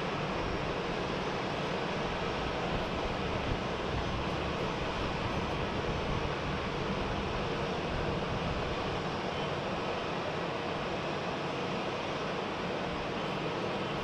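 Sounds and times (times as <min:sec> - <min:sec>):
jet aircraft engine rushing: 0:00.0 - 0:14.0.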